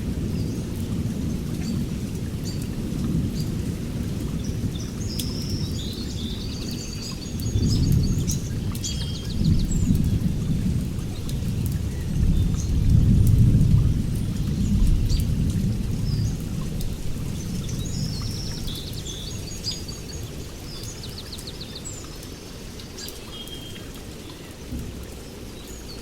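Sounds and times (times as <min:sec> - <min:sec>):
steady rain: 0:00.0 - 0:26.0
small birds chirping: 0:17.3 - 0:26.0.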